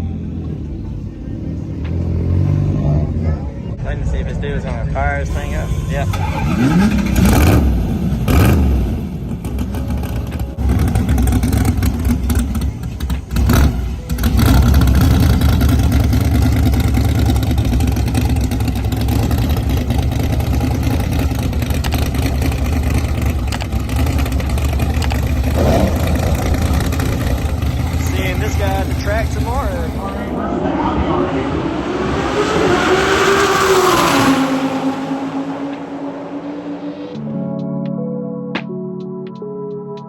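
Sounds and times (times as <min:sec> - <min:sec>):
car engine starting and idling: 0:00.0 - 0:37.2
engine revving: 0:06.1 - 0:12.5, 0:13.3 - 0:37.2.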